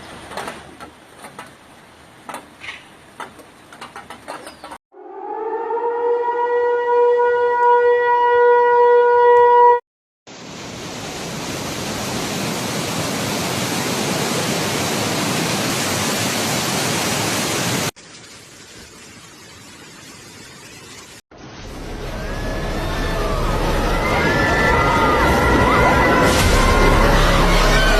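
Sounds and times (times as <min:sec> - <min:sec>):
warning siren wailing: 0:04.9 - 0:09.8, 0:21.7 - 0:27.9
loud rushing noise: 0:21.4 - 0:27.9.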